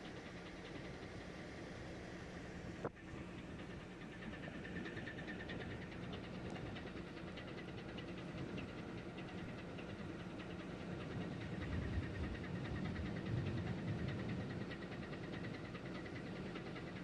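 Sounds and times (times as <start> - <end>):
ship engine droning: 0.0 - 17.0.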